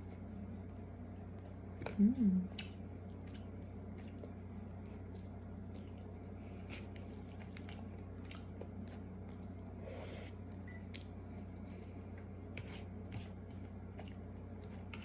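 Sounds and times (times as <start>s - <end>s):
steady low hum: 0.0s - 15.0s
person chewing food: 2.5s - 11.3s, 12.1s - 15.0s.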